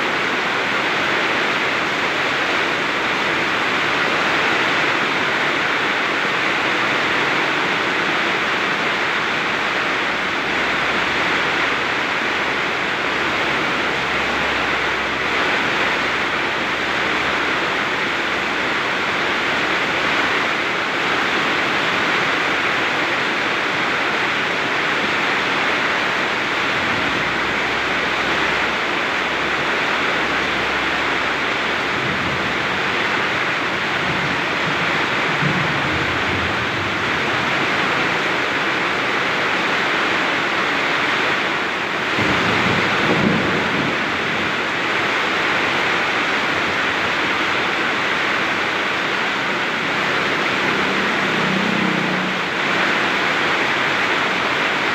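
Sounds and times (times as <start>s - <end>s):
heavy rain pouring: 0.0s - 54.9s
strong wind: 0.0s - 54.9s
low rumble: 10.2s - 21.6s, 24.4s - 39.8s.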